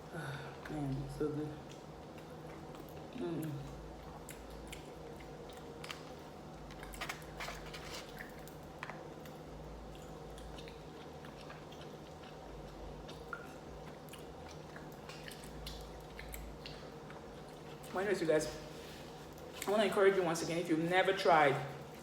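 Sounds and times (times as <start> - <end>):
low steady hum: 0.0 - 22.0
person chewing food: 1.6 - 17.9.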